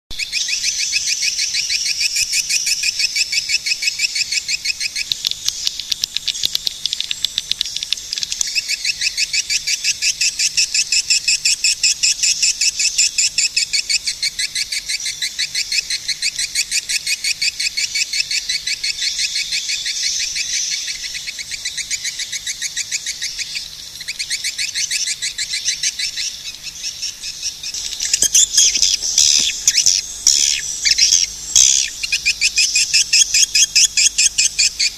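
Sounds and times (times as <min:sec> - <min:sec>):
swiftlets chirping: 0:27.5 - 0:34.9.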